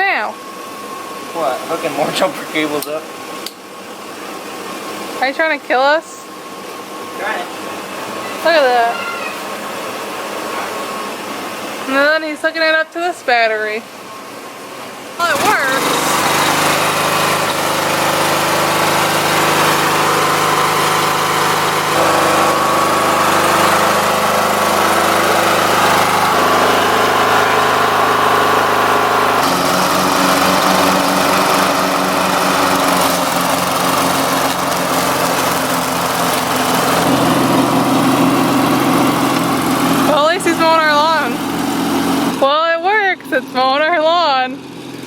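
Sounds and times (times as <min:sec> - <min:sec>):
lawn mower engine running: 0:14.9 - 0:45.0.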